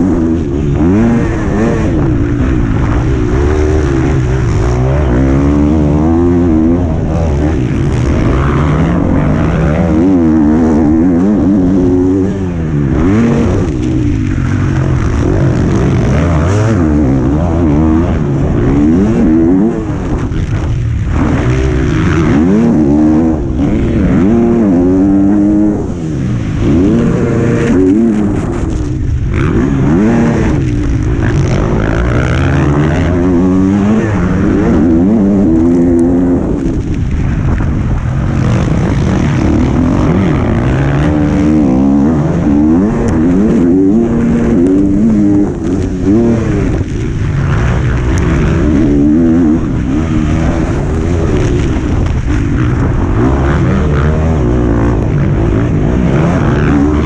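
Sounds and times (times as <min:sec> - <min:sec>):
motocross bike engine: 0:00.0 - 0:57.0
wind buffeting microphone: 0:23.2 - 0:57.0.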